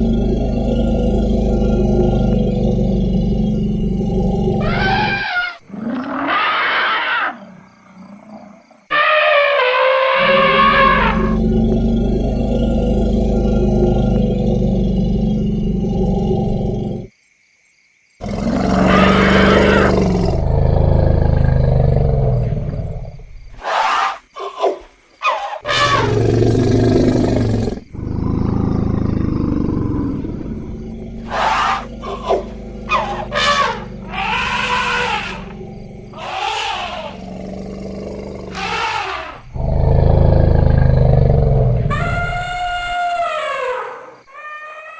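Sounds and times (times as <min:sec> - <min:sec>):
elephants rumbling and bellowing: 0:00.0 - 0:06.9, 0:08.2 - 0:17.0, 0:25.4 - 0:44.0
elephants trumpeting: 0:04.6 - 0:07.4, 0:08.9 - 0:11.4, 0:30.1 - 0:37.8, 0:38.4 - 0:39.7, 0:41.6 - 0:44.9.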